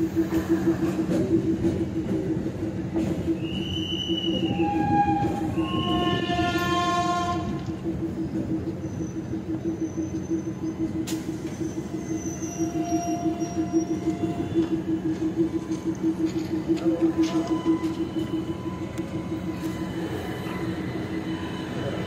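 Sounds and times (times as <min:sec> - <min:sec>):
train rumbling on rails: 0:00.0 - 0:22.0
high metallic squeals: 0:11.4 - 0:15.0, 0:16.9 - 0:22.0.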